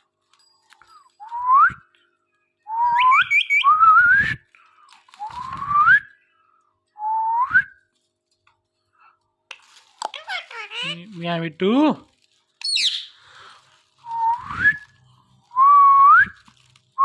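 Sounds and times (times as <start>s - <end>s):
parrot whistling: 2.7s - 4.2s, 12.6s - 13.2s.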